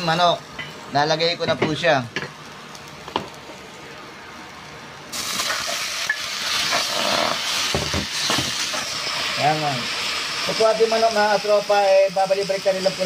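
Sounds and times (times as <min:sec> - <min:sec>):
vegetables frying in oil: 0:00.0 - 0:13.0
chicken sizzling loudly in oil: 0:05.1 - 0:13.0.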